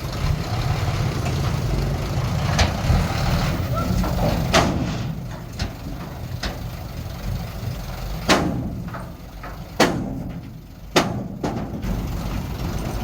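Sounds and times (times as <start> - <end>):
diesel machinery running: 0.0 - 13.0.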